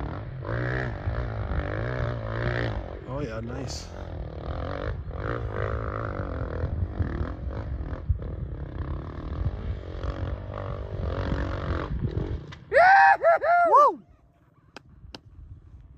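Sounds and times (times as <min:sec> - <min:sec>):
dirt bike engine revving: 0:00.0 - 0:12.7.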